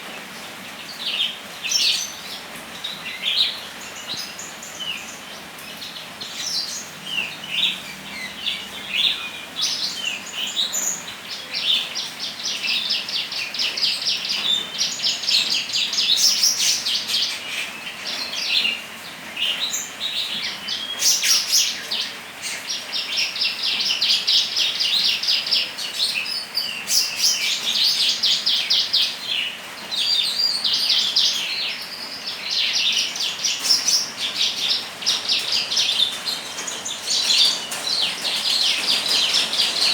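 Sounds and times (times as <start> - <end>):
songbird trilling: 30.0 - 39.9.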